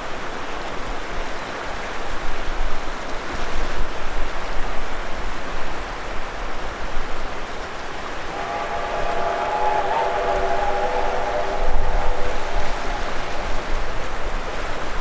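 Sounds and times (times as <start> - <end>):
steam locomotive whistle: 8.2 - 15.0.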